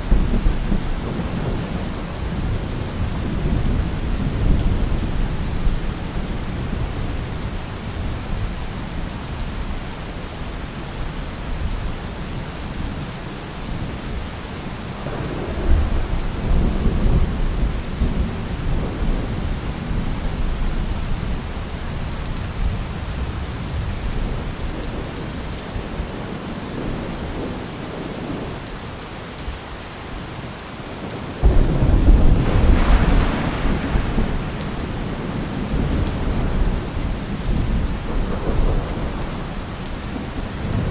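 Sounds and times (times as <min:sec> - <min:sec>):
heavy rain: 0:00.0 - 0:40.9
rolling thunder: 0:15.0 - 0:20.5, 0:31.4 - 0:40.9
sudden thunderclap: 0:31.4 - 0:36.9.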